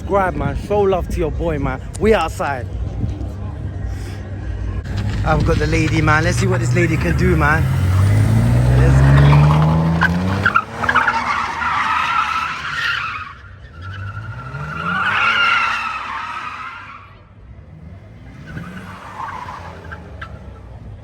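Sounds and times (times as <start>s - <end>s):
car engine revving: 4.7s - 21.0s
tyres squealing: 4.8s - 17.2s.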